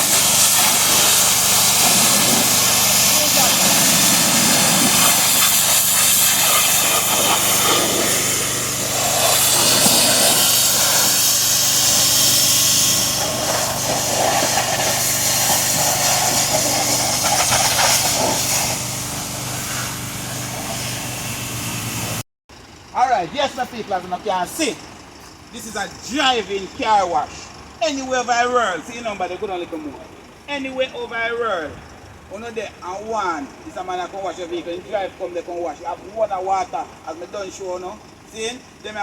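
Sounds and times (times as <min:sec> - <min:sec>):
motor humming: 0:00.0 - 0:22.2
pressure washer spraying water: 0:00.0 - 0:22.2.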